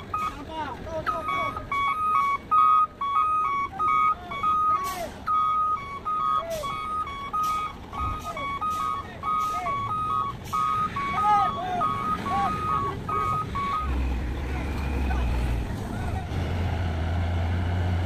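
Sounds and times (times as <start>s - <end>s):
reversing alarm beeping: 0.0s - 15.7s
low vehicle rumble: 0.0s - 18.0s.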